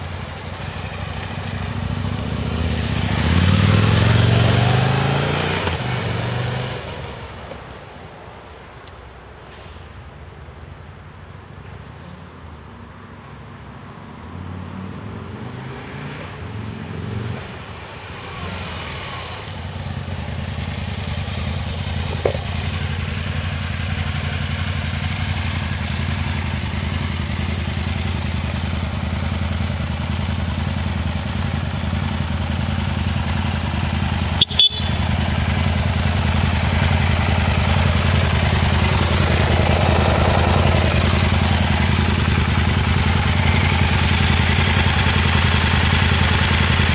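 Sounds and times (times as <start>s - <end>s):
motorcycle engine running: 0.0s - 6.3s, 18.6s - 46.9s.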